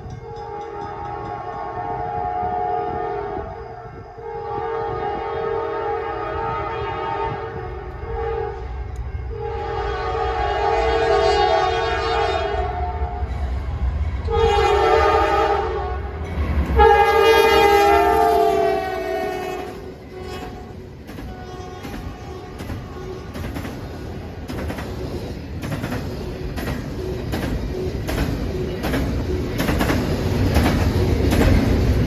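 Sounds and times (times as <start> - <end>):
low rumble of moving train: 0.0 - 32.0
locomotive air horn blasts: 0.2 - 3.6, 4.2 - 13.3, 14.3 - 23.4.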